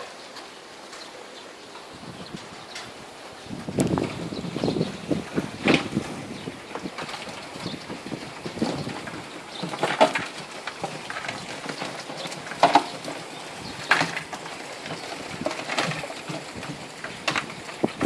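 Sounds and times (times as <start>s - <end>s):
steady background hiss: 0.0s - 18.0s
sharp knocks and clatters: 3.7s - 18.0s.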